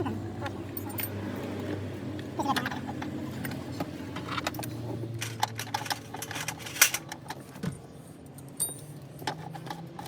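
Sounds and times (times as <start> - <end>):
tools clinking on engine parts: 0.7 - 1.2, 4.2 - 7.5, 8.3 - 10.0.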